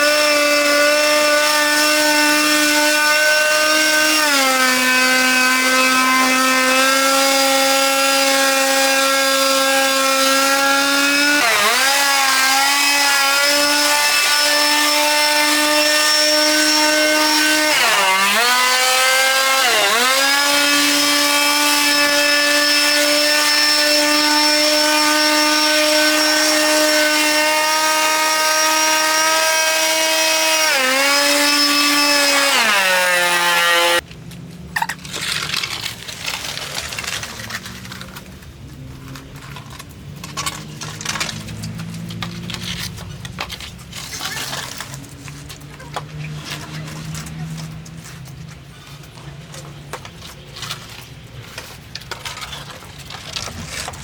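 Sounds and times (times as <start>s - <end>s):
cutting tool whining: 0.0s - 34.0s.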